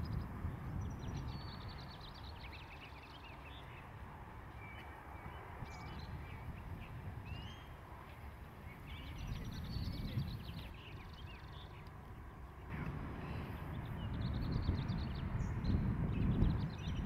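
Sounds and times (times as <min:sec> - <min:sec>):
small birds chirping: 0:00.0 - 0:17.0
low outdoor rumble: 0:07.8 - 0:17.0.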